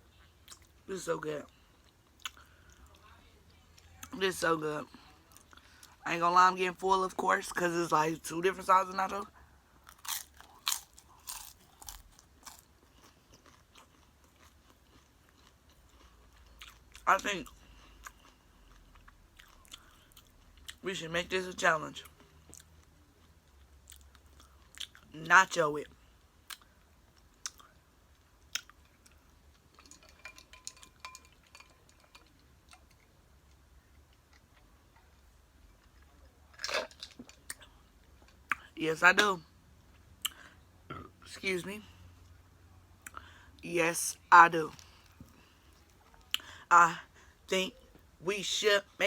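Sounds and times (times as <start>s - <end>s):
faint chewing: 1.5s - 3.1s, 9.8s - 20.8s, 22.0s - 25.1s, 26.5s - 38.7s
chips crunching and chewing: 9.9s - 20.8s
dishes clinking: 29.8s - 32.4s.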